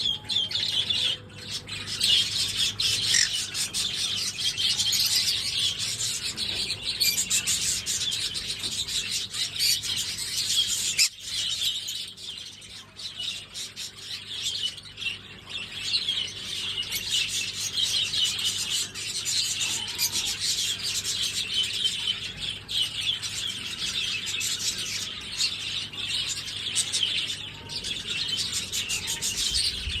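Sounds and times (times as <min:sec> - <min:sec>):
parrot chirping and chattering: 0:01.7 - 0:08.4.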